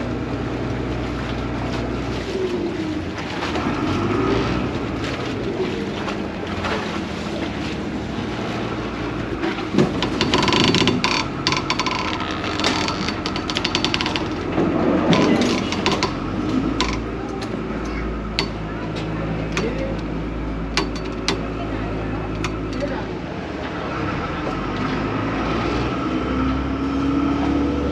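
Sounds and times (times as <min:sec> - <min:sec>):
boat engine running: 0:00.0 - 0:27.9
rattling clicking clatter: 0:09.6 - 0:18.6, 0:19.4 - 0:23.0.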